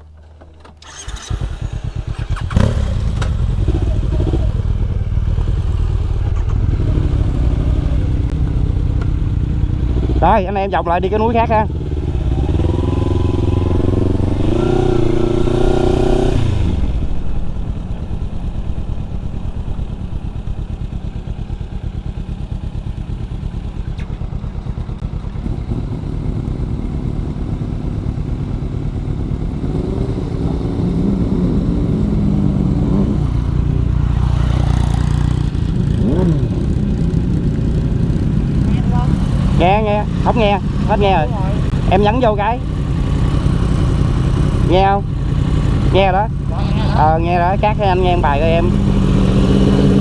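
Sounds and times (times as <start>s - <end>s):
motorcycle engine revving: 0.8s - 50.0s.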